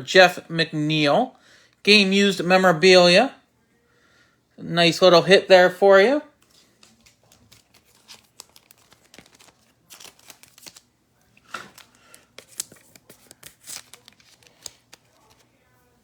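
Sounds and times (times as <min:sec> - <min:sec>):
plastic crinkling and rustling: 0:06.4 - 0:16.0.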